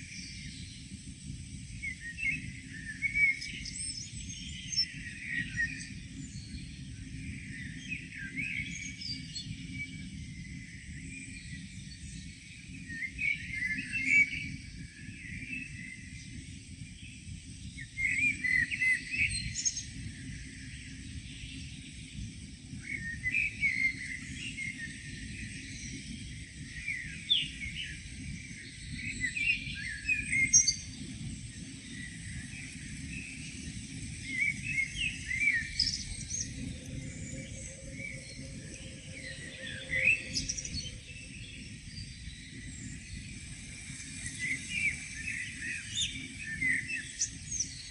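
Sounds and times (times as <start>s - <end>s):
songbirds chirping and singing: 1.7s - 47.9s
low background rumble: 35.5s - 43.4s.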